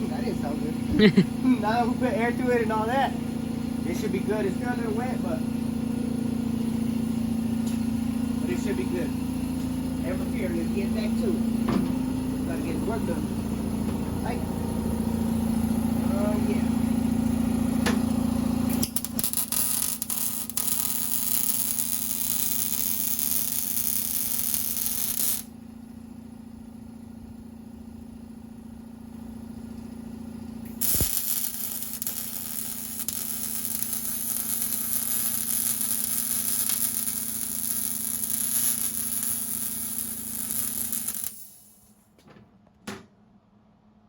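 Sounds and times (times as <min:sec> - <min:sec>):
welding arc crackling: 0:17.7 - 0:25.5, 0:30.7 - 0:41.9.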